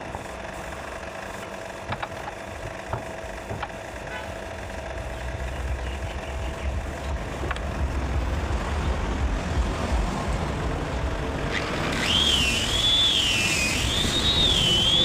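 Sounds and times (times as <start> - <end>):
low steady rumble: 0.0 - 12.1
power tool cutting wood: 11.3 - 15.0.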